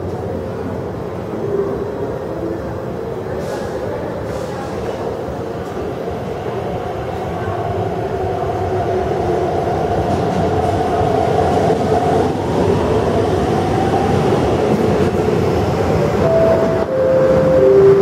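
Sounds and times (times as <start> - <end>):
electric train rumbling past: 0.0 - 18.0
descending short tones: 16.2 - 18.0.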